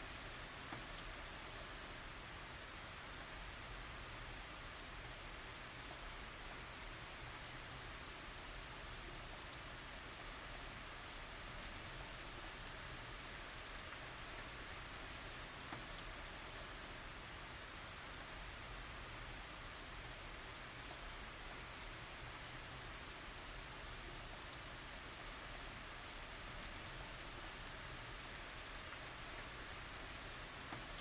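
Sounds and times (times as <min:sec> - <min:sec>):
raindrops ticking: 0:00.0 - 0:02.0, 0:07.2 - 0:17.0, 0:18.0 - 0:31.0
steady rain hiss: 0:00.0 - 0:31.0.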